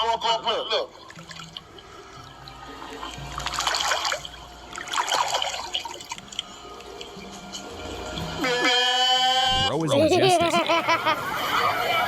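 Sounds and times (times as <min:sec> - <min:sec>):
trickling water: 0:00.9 - 0:08.4.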